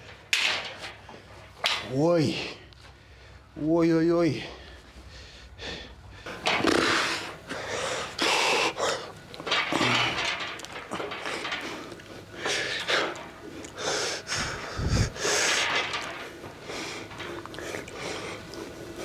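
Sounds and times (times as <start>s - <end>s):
person breathing hard: 4.5s - 19.0s.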